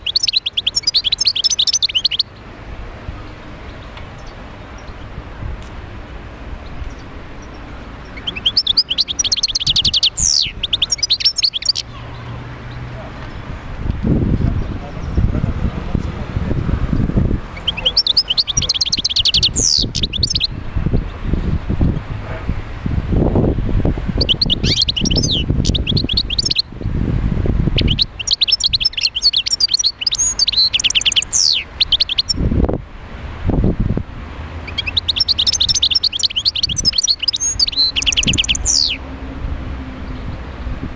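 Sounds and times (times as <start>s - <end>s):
bird twittering: 0.0s - 2.4s, 6.8s - 12.3s, 17.6s - 20.6s, 24.2s - 26.7s, 27.8s - 32.4s, 34.6s - 39.0s
goldfinch singing: 0.0s - 2.4s, 6.6s - 13.4s, 17.6s - 21.1s, 24.1s - 26.7s, 27.8s - 32.4s, 34.6s - 39.0s.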